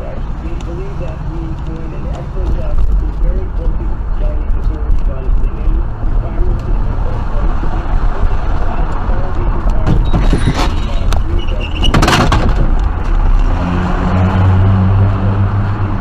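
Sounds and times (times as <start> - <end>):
steady low hum: 0.0 - 11.4
vehicle driving rumble: 0.0 - 16.0.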